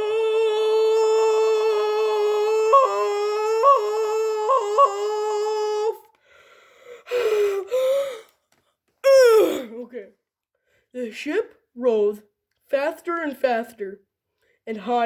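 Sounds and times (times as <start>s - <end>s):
voice holding long note: 0.0s - 6.1s.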